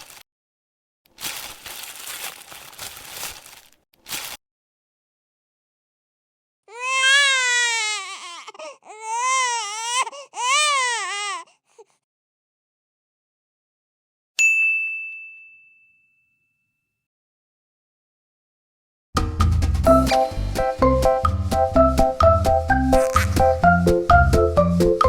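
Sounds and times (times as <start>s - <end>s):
baby crying: 6.7s - 12.0s
bright ding: 14.4s - 16.8s.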